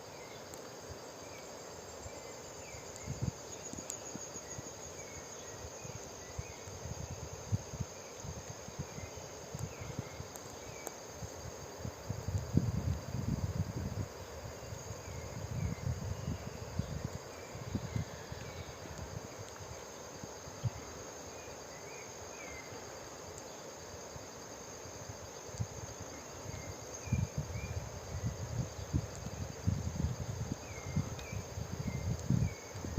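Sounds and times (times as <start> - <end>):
insects trilling: 0.0 - 32.9
wind rumbling on microphone: 2.6 - 10.2, 11.2 - 19.8, 25.6 - 32.9.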